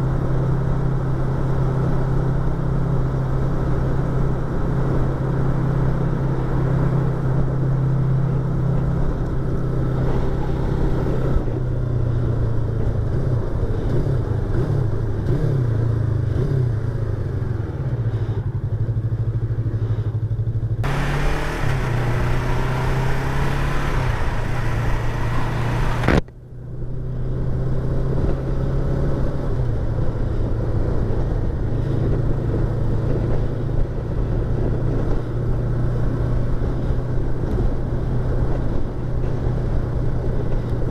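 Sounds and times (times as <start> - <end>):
motorcycle engine running: 0.0 - 40.9
loud rushing noise: 20.8 - 26.2.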